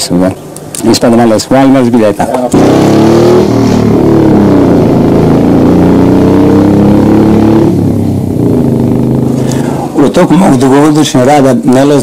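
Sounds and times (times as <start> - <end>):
moped engine running: 2.6 - 10.6.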